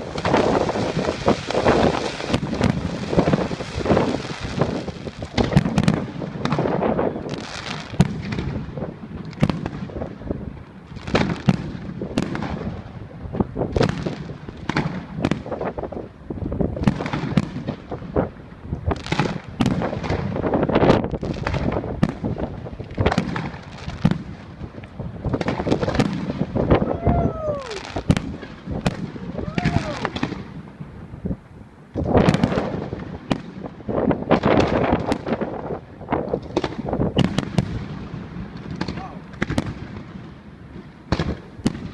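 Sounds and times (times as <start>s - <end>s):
fireworks bangs and crackling: 0.0s - 41.9s.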